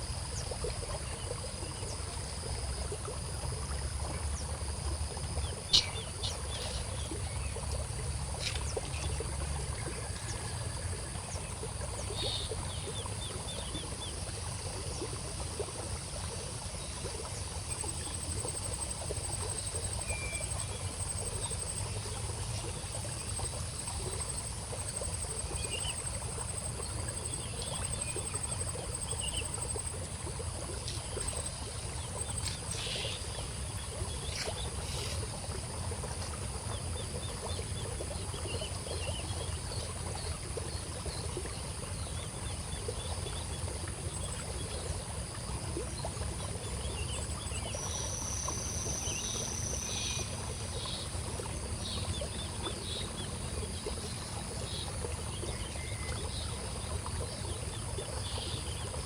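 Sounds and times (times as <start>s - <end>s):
faint bird chirps: 5.7s - 7.6s.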